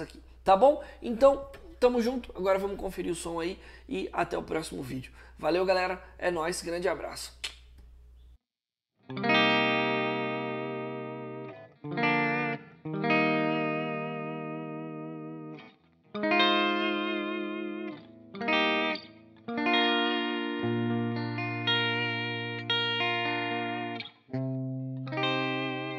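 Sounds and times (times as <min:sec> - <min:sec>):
electric guitar chords ringing: 0:09.0 - 0:25.9.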